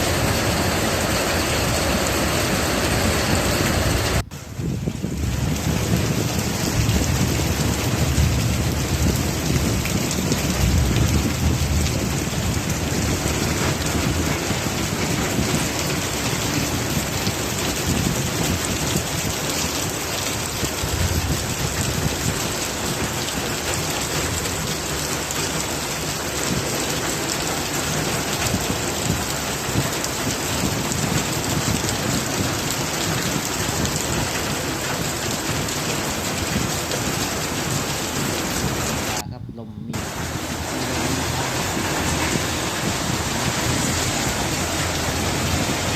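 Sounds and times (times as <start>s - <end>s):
low thunder rumbling: 0.0s - 25.1s
heavy rain falling: 0.0s - 45.9s.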